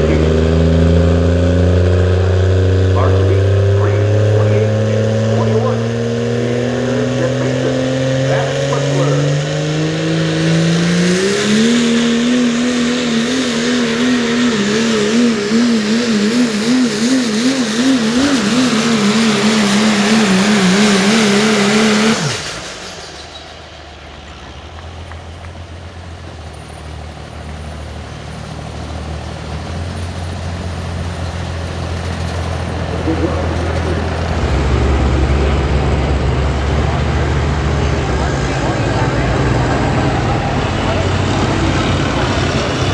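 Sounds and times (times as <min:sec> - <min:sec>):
diesel engine at full throttle: 0:00.0 - 0:42.9
engine idle rumble: 0:22.0 - 0:42.9.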